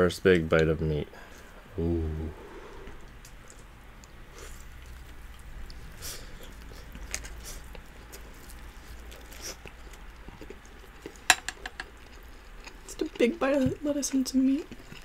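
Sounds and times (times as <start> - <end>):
person chewing meat: 2.6 - 13.2, 14.6 - 15.0.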